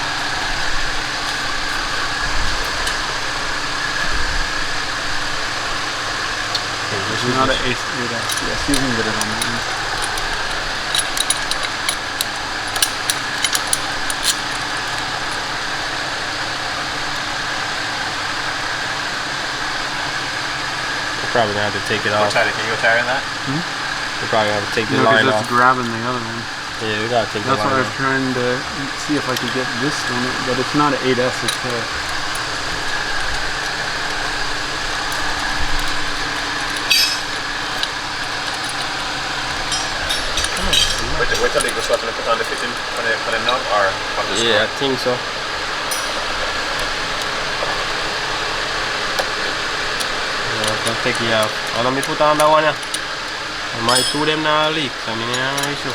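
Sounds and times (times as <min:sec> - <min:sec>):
steady mechanical hum: 0:00.0 - 0:55.9
wrench clinking on metal fitting: 0:06.5 - 0:15.5, 0:29.1 - 0:43.7, 0:45.8 - 0:47.9, 0:50.0 - 0:55.9.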